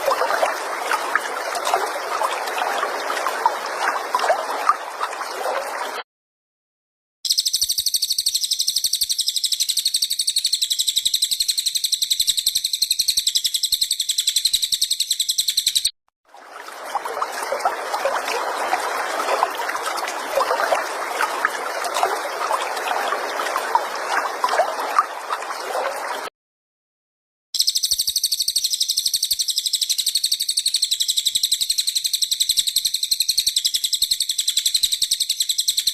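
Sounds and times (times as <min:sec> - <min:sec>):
fast high-pitched bird trill: 0:07.3 - 0:15.9, 0:27.6 - 0:35.9.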